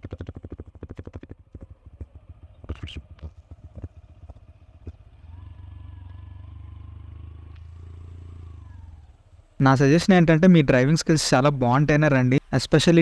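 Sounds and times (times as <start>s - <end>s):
motorcycle engine running: 0.0s - 12.3s
faint whine: 1.6s - 13.0s.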